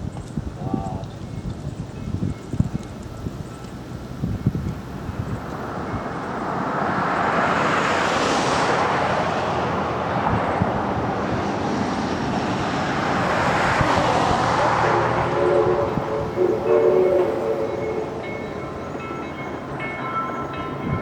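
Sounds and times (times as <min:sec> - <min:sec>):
steam locomotive hissing: 0:11.2 - 0:20.6.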